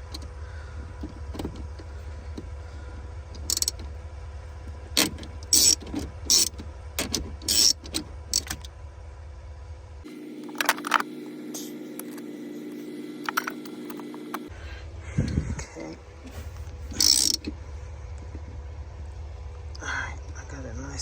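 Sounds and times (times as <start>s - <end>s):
steady low hum: 0.0s - 21.0s
wrench clicking and clanking: 3.4s - 3.8s, 5.0s - 8.7s, 16.9s - 17.5s.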